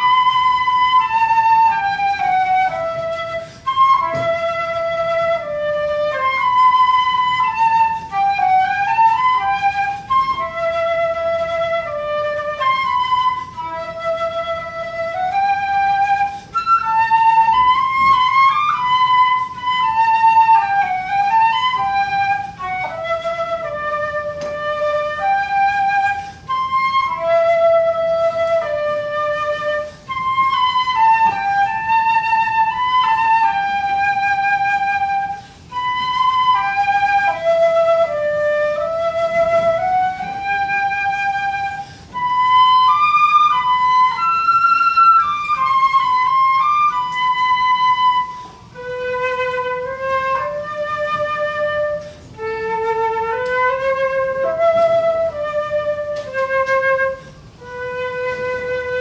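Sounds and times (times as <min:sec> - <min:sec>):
solo flute melody: 0:00.0 - 0:59.0
flutist breathing: 0:03.3 - 0:03.8, 0:16.2 - 0:16.6, 0:26.2 - 0:26.5, 0:35.3 - 0:35.8, 0:41.7 - 0:42.2, 0:48.3 - 0:48.7, 0:52.0 - 0:52.4.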